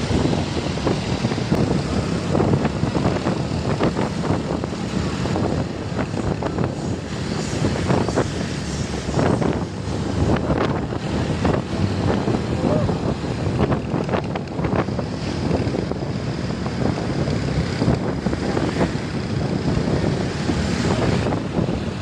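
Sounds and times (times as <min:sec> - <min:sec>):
heavy truck engines driving by: 0:00.0 - 0:22.0
wind buffeting microphone: 0:00.0 - 0:22.0.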